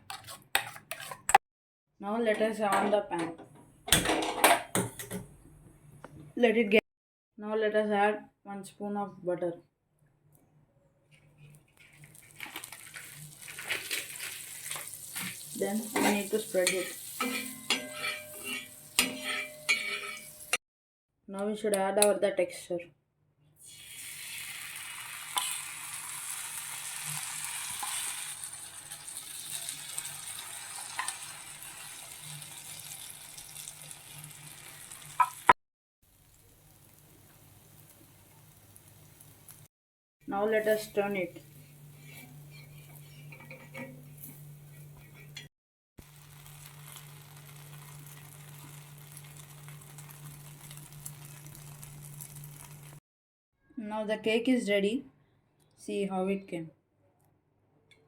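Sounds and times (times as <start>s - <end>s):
batter sizzling in a pan: 11.4s - 20.6s, 23.6s - 39.7s, 46.0s - 53.0s.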